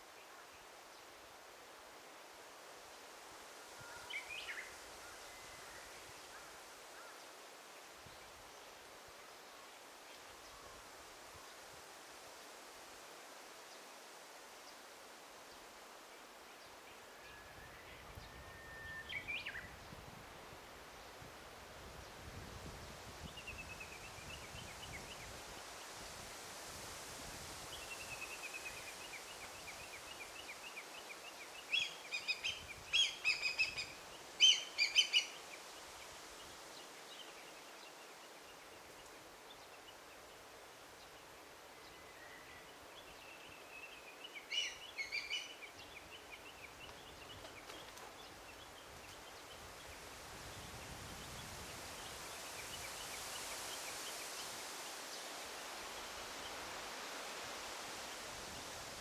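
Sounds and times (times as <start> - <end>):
soft steady ambient hiss: 0.0 - 59.0
wild birds calling: 31.7 - 35.4.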